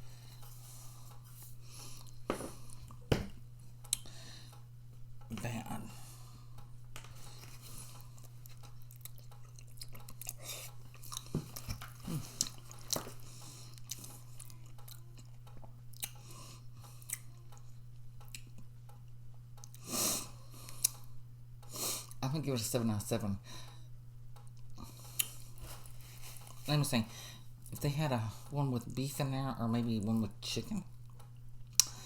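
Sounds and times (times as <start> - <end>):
low electrical hum: 0.0 - 32.0
person chewing soft food: 0.1 - 3.1, 3.8 - 4.7, 6.0 - 21.1, 24.4 - 26.7, 31.0 - 32.0
wet mouth clicks and smacks: 15.9 - 16.2.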